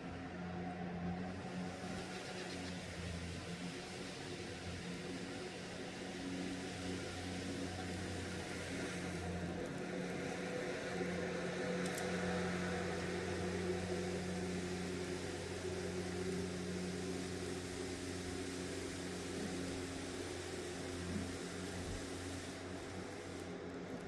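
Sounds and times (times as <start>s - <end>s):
low mechanical hum: 0.0s - 24.0s
even hiss: 1.3s - 24.0s.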